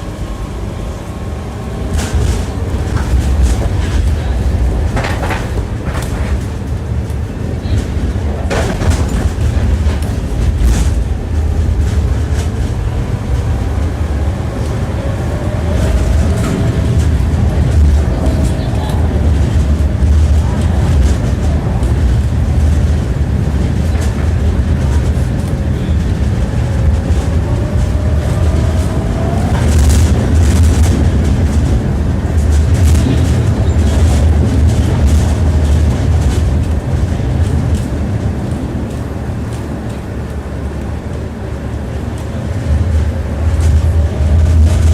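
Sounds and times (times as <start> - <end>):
tram rumbling: 0.0 - 44.9
wheels clacking over rail joints: 1.8 - 44.9
wheels clattering over rail joints: 1.9 - 14.0.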